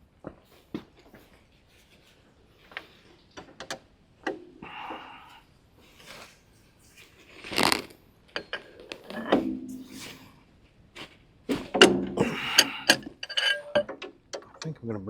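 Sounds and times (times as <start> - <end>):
rasping scrape: 6.9 - 8.0, 12.2 - 13.8
tools and metal parts clicking: 11.7 - 14.5.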